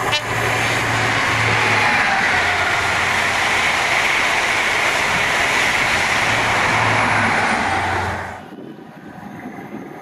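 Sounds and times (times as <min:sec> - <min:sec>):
train coaches passing at speed: 0:00.0 - 0:10.0.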